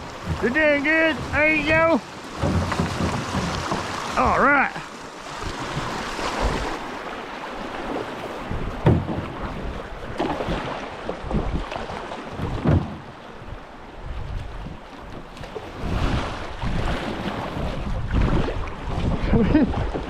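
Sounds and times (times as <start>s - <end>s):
knocks and splashes: 0.0s - 20.0s
rushing river water: 0.0s - 20.0s
wind on microphone: 7.8s - 12.8s, 13.4s - 20.0s.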